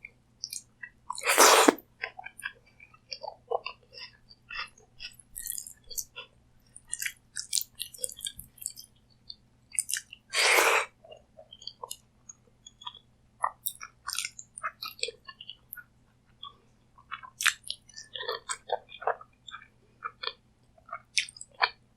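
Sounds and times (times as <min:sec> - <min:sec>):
chewing food: 0:06.8 - 0:08.8, 0:16.4 - 0:21.8.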